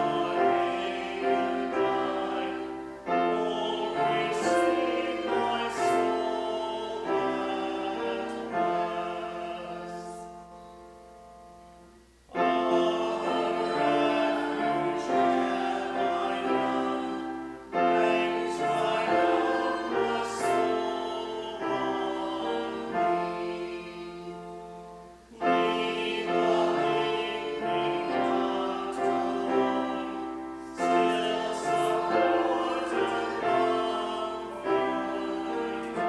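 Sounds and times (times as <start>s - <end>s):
congregation singing a hymn: 0.0s - 36.0s
keyboard accompaniment: 0.0s - 36.0s.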